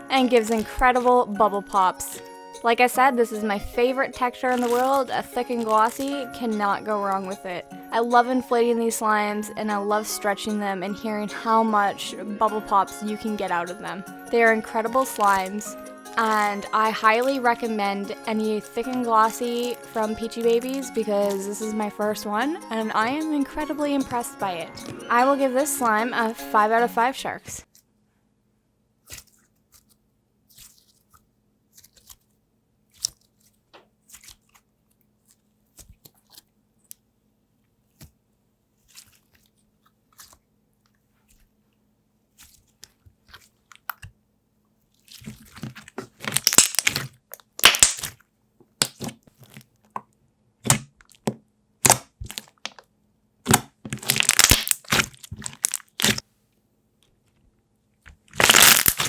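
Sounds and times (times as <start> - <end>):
slime squishing with crackling pops: 4.4 - 6.3, 14.8 - 17.6, 32.9 - 36.5, 45.0 - 49.6, 50.6 - 52.8, 53.5 - 56.2, 58.1 - 59.0.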